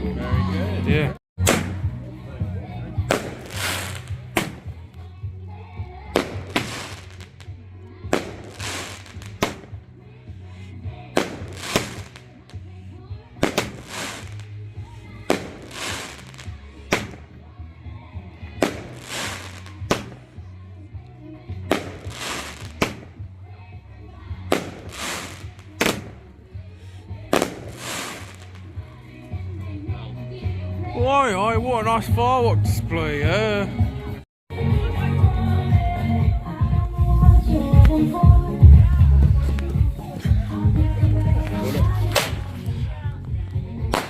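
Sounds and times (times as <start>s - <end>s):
music with heavy bass: 0.0s - 44.0s
firework bangs with crackle: 1.4s - 1.9s, 3.0s - 4.8s, 6.2s - 7.5s, 8.1s - 9.8s, 11.1s - 12.6s, 13.4s - 17.4s, 18.6s - 20.3s, 21.6s - 23.3s, 24.5s - 26.3s, 27.2s - 28.8s, 41.5s - 42.6s.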